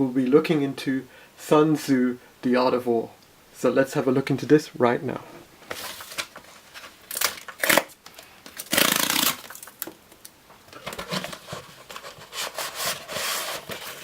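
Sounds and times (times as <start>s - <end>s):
book packaging rustling: 5.6s - 10.0s, 10.6s - 14.0s
packaging rasp: 5.7s - 9.8s, 10.8s - 14.0s.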